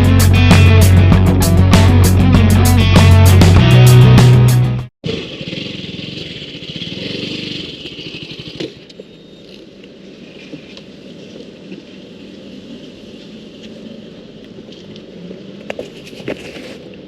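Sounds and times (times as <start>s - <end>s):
motorcycle engine idling: 5.1s - 9.4s.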